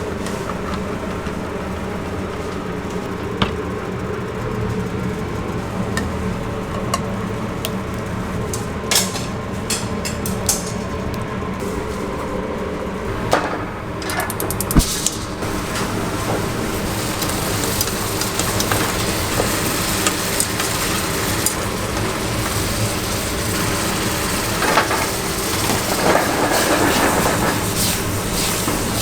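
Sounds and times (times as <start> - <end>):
utensils clicking and knocking: 0.0 - 3.9, 8.4 - 11.2
rumbling kitchen din: 0.0 - 29.0
loud clatter: 13.2 - 29.0
food sizzling: 14.8 - 29.0.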